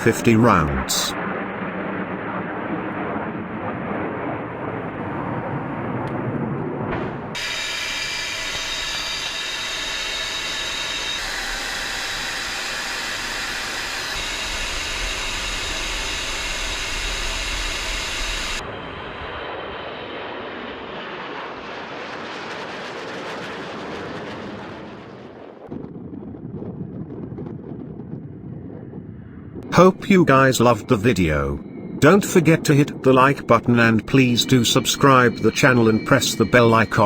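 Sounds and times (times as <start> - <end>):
fighter jet engines whining: 0.0 - 25.6, 29.6 - 37.0.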